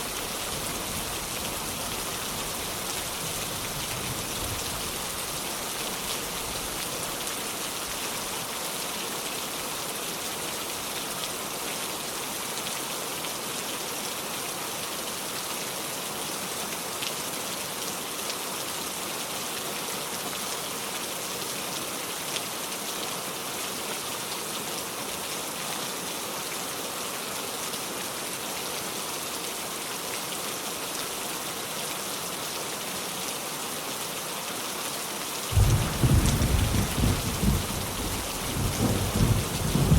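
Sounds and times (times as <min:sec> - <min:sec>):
heavy rain falling: 0:00.0 - 0:12.8, 0:35.4 - 0:39.9.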